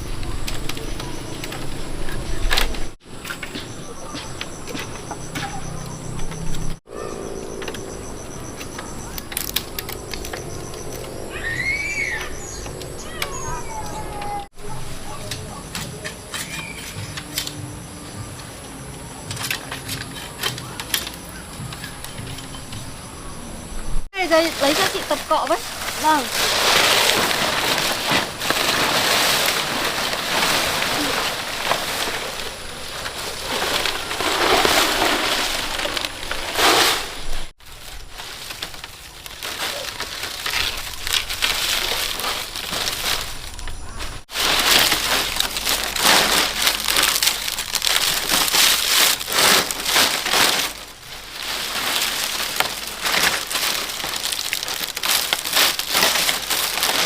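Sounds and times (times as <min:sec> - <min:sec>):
dry palm fronds rustling: 0:00.0 - 0:23.0, 0:24.1 - 0:57.0.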